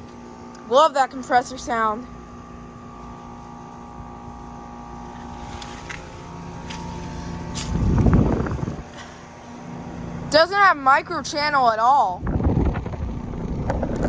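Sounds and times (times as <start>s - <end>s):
air conditioner compressor hum: 0.0s - 14.0s
low rumble on microphone: 2.2s - 10.4s, 12.1s - 14.0s.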